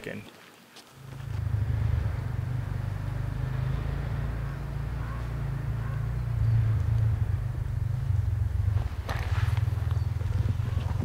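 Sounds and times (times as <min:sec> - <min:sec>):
steady low rumble: 0:01.0 - 0:11.0.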